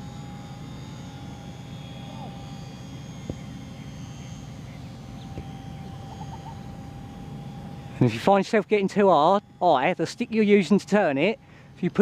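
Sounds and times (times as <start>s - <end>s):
model plane motor whine: 0.0s - 12.0s.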